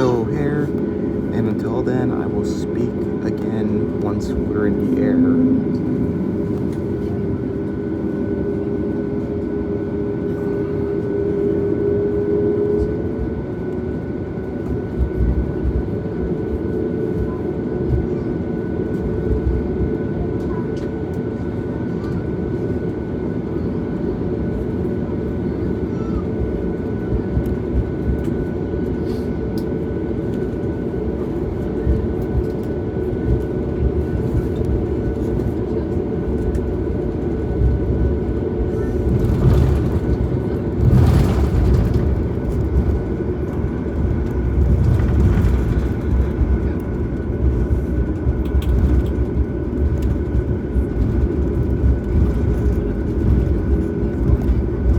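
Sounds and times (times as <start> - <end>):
aircraft cabin engine rumble: 0.0 - 54.9
bumps and rattles: 38.8 - 54.9.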